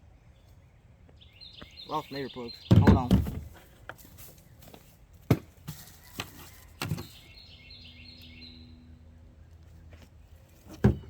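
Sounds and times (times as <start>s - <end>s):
bird chirping: 0.0s - 3.6s, 6.6s - 10.0s.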